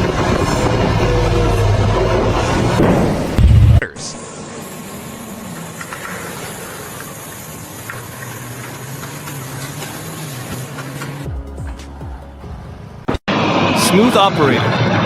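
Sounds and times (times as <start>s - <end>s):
engine running: 0.0s - 15.0s
steady hiss: 4.0s - 11.2s.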